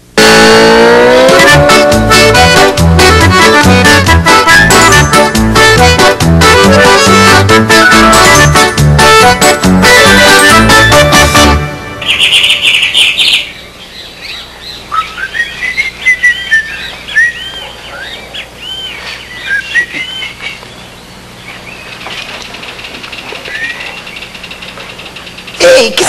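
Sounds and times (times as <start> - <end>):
birds chirping: 11.8 - 26.0.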